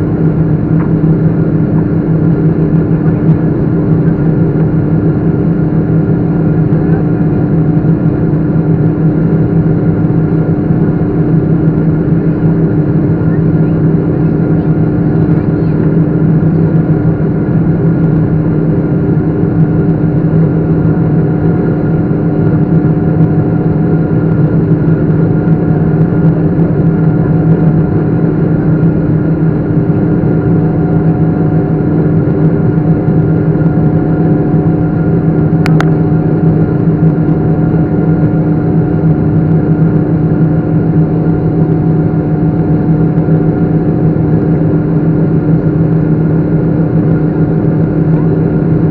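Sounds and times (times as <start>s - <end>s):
jet engines droning: 0.0s - 48.9s.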